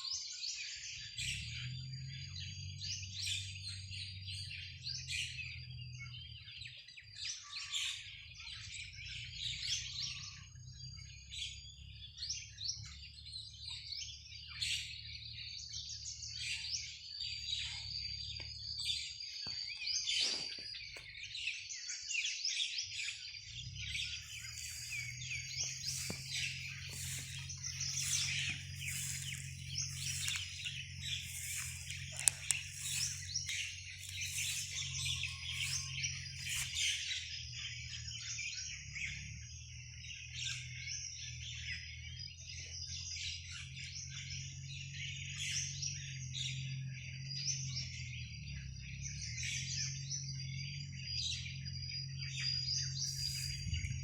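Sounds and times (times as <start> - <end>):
flock of birds chirping: 0.0 - 54.0
steady low hum: 23.6 - 37.9.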